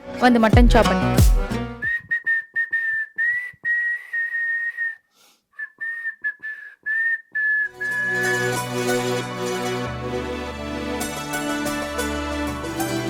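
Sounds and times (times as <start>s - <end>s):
background music: 0.0s - 1.9s, 7.7s - 13.0s
pressure cooker whistling: 7.7s - 8.6s.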